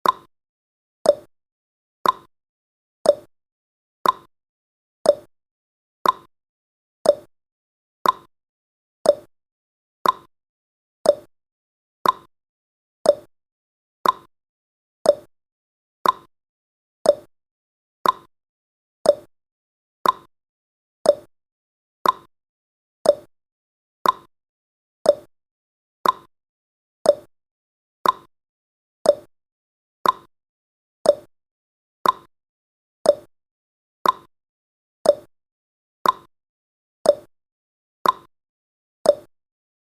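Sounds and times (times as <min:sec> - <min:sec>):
timer ticking: 0:00.0 - 0:00.3, 0:01.0 - 0:01.3, 0:02.0 - 0:02.3, 0:03.0 - 0:03.3, 0:04.0 - 0:04.3, 0:05.1 - 0:05.3, 0:06.0 - 0:06.3, 0:07.0 - 0:07.3, 0:08.0 - 0:08.3, 0:09.0 - 0:09.3, 0:10.0 - 0:10.3, 0:11.0 - 0:11.3, 0:12.0 - 0:12.3, 0:13.0 - 0:13.3, 0:14.0 - 0:14.3, 0:15.0 - 0:15.3, 0:16.0 - 0:16.3, 0:17.0 - 0:17.3, 0:18.0 - 0:18.3, 0:19.0 - 0:19.3, 0:20.0 - 0:20.3, 0:21.0 - 0:21.3, 0:22.0 - 0:22.3, 0:23.0 - 0:23.3, 0:24.0 - 0:24.3, 0:25.0 - 0:25.3, 0:26.0 - 0:26.3, 0:27.0 - 0:27.3, 0:28.0 - 0:28.3, 0:29.0 - 0:29.3, 0:30.0 - 0:30.3, 0:31.0 - 0:31.3, 0:32.0 - 0:32.3, 0:33.0 - 0:33.3, 0:34.0 - 0:34.3, 0:35.0 - 0:35.3, 0:36.0 - 0:36.3, 0:37.0 - 0:37.3, 0:38.0 - 0:38.3, 0:39.1 - 0:39.3.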